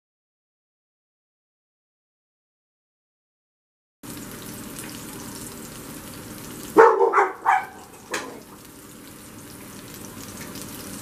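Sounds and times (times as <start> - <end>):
fish sizzling in a frying pan: 4.0 - 6.8, 7.4 - 11.0
dog barking: 6.8 - 8.4.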